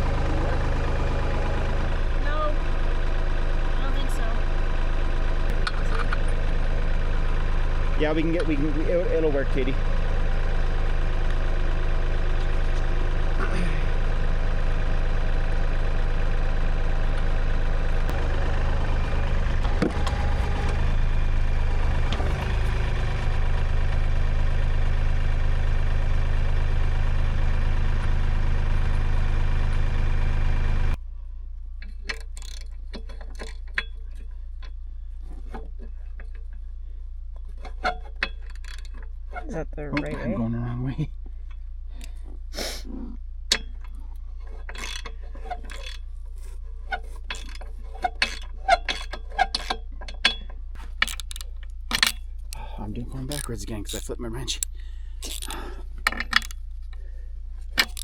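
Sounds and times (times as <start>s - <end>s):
tractor engine idling: 0.0s - 35.3s, 50.5s - 58.0s.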